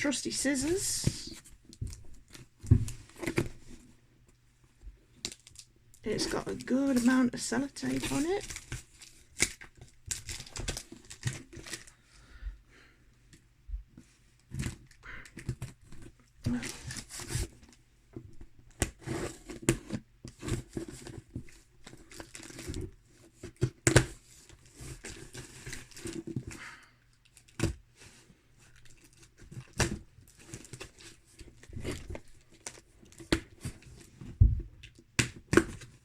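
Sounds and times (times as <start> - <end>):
packaging crinkling: 5.3 - 12.0.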